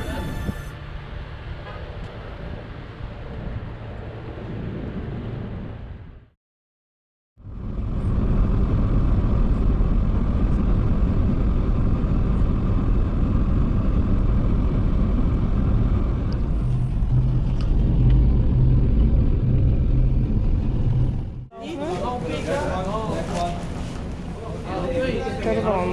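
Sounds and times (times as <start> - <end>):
wind and motion noise: 0.0 - 6.3, 7.4 - 22.2
vehicle engine rumble: 7.4 - 24.9
deep throbbing engine note: 14.5 - 21.5.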